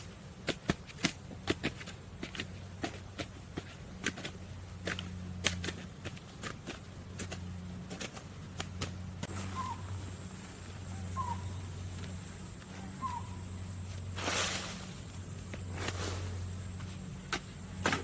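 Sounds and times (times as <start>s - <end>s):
steady low hum: 0.0s - 18.0s
bird calling: 9.2s - 14.0s.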